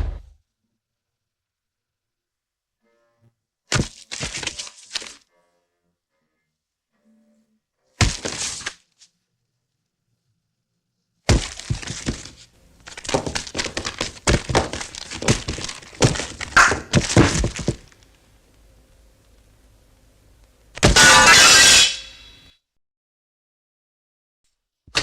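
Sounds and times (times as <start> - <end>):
crashing and breaking: 3.7 - 5.2, 8.0 - 8.8, 11.3 - 18.0, 20.8 - 22.0
clattering knocks and crashes: 11.3 - 18.0.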